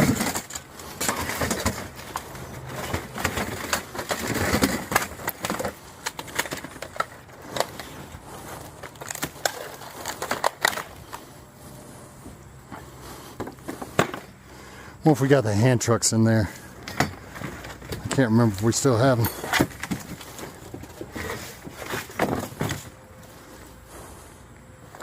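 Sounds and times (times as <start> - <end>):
hard objects clattering: 0.0 - 11.8, 12.6 - 14.5, 16.7 - 23.0
rustling and scraping: 0.0 - 14.8, 16.4 - 25.0.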